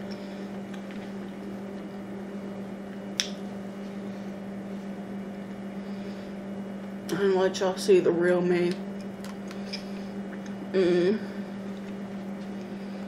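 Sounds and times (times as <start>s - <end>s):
steady low hum: 0.0s - 13.0s
person chewing wetly: 9.0s - 10.6s, 11.6s - 12.8s.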